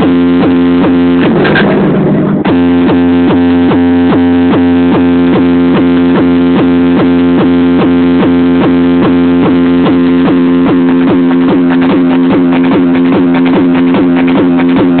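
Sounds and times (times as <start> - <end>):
distorted electronic synthesizer loop: 0.0 - 15.0.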